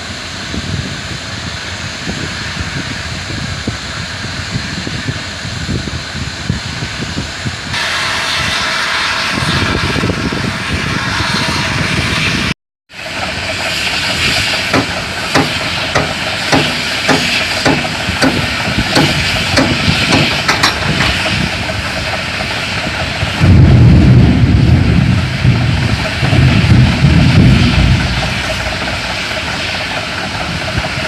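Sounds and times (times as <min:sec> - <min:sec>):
mechanical hiss: 0:13.0 - 0:23.4, 0:25.8 - 0:31.0.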